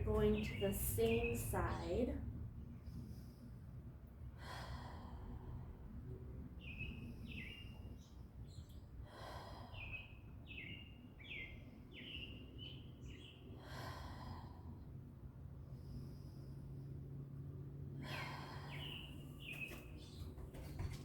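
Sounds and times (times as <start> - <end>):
faint outdoor background: 0.0 - 21.0
exhaled breaths: 9.0 - 10.3, 13.6 - 20.2.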